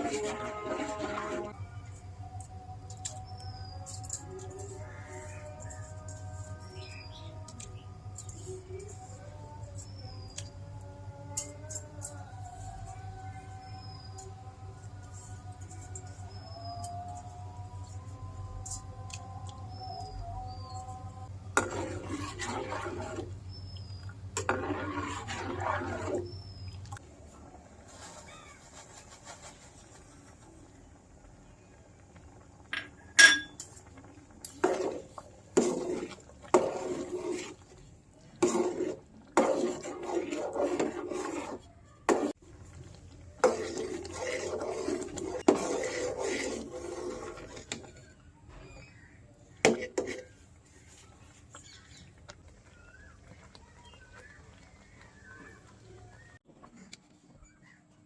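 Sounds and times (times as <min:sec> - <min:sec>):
spoon scraping cookware: 0:00.0 - 0:01.6, 0:21.5 - 0:23.5, 0:24.3 - 0:26.4, 0:34.4 - 0:37.8, 0:38.4 - 0:42.4, 0:43.4 - 0:48.0, 0:49.7 - 0:50.4
metal spoon clinking: 0:32.8 - 0:33.7.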